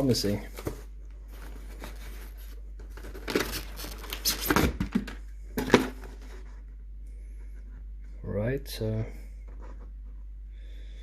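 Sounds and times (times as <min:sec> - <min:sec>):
packaging tearing and crinkling: 0:03.0 - 0:04.8.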